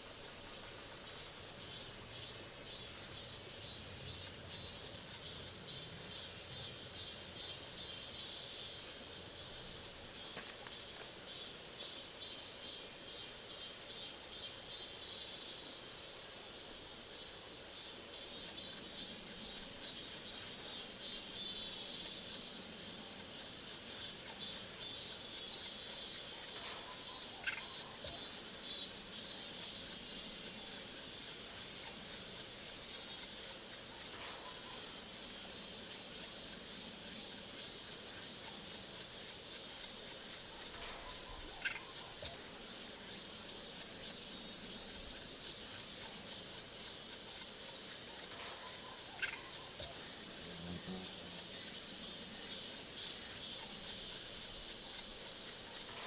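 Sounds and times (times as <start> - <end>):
insect chirring: 0.0 - 56.0.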